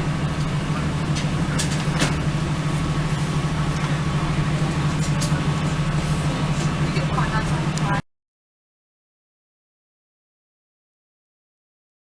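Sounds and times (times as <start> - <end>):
diesel train engine drone: 0.0 - 8.0.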